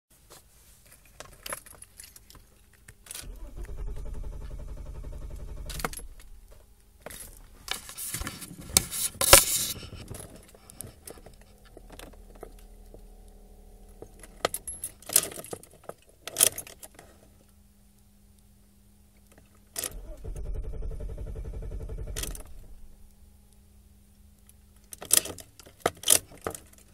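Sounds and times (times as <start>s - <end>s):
car keys jangling: 0.9s - 8.0s, 8.8s - 17.0s
low hum: 3.1s - 15.8s, 17.2s - 25.0s.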